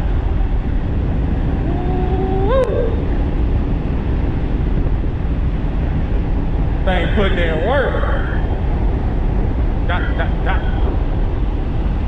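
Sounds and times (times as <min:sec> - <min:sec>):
wind roaring over microphone: 0:00.0 - 0:12.0
rising pitched tone: 0:01.6 - 0:03.4.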